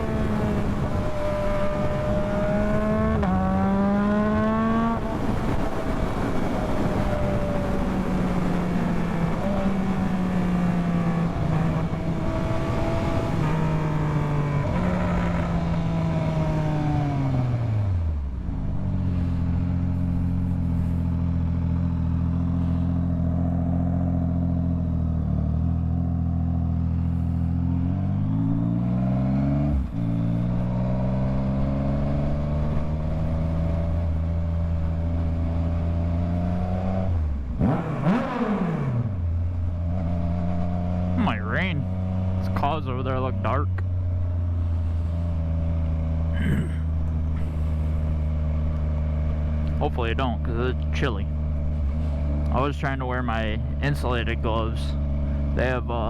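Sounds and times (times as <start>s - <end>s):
wind rush: 0.0s - 9.5s
motorcycle engine revving and idling: 0.0s - 56.0s.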